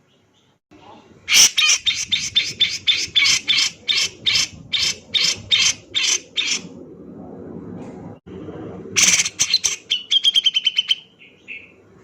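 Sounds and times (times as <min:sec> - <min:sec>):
bird harsh rasping notes: 0:09.0 - 0:11.7.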